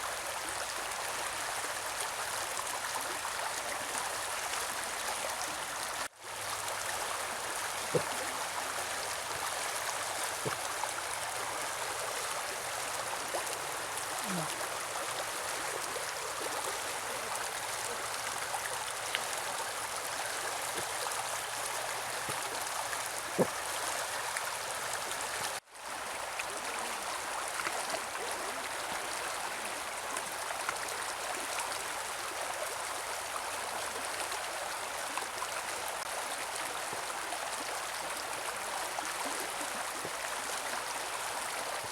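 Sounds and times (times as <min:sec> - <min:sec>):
river water rushing: 0:00.0 - 0:41.9
small water plops: 0:07.5 - 0:11.4.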